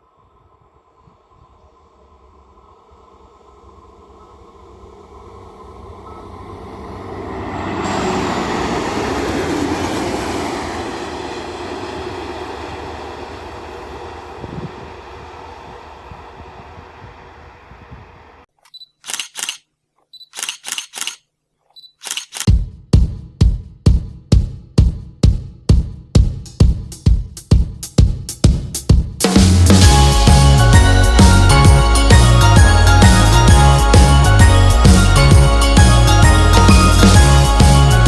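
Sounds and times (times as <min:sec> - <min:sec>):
train passing on rails: 0:00.0 - 0:18.5, 0:29.4 - 0:38.0
music with steady beat: 0:22.5 - 0:38.0.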